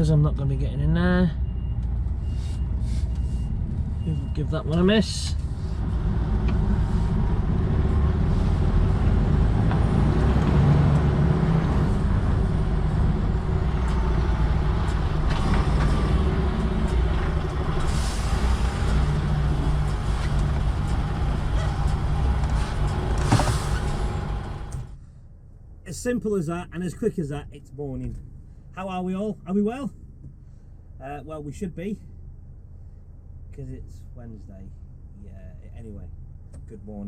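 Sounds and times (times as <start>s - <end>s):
air brakes hissing: 2.2s - 3.6s, 17.8s - 19.1s, 22.6s - 24.3s
lorry diesel engine running: 2.4s - 25.2s.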